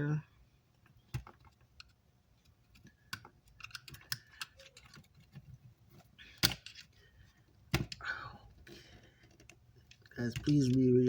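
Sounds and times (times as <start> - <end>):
hand tools clicking and tapping: 2.7 - 5.5.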